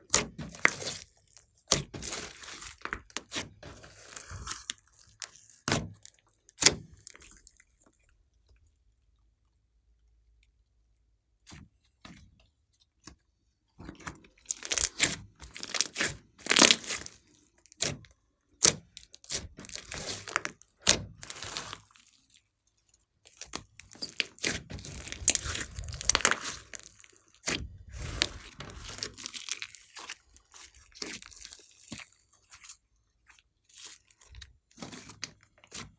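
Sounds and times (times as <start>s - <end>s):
slime squeezed and stretched by hand: 0.1s - 7.9s, 14.4s - 17.9s, 18.6s - 22.4s, 23.2s - 35.9s.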